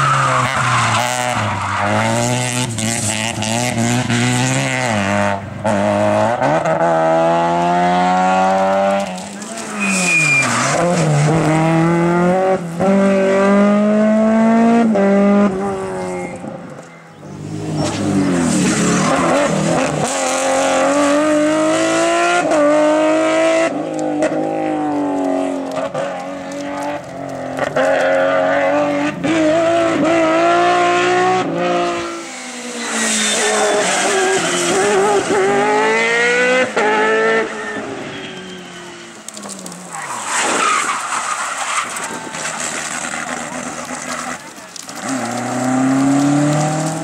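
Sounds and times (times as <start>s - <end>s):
race car engine accelerating: 42.6s - 47.0s.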